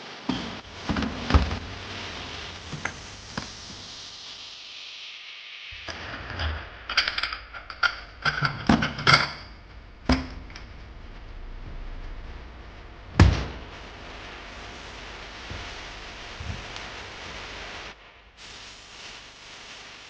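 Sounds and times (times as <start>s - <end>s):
dishes and cups clinking: 6.4s - 10.3s
thump: 13.2s - 13.6s.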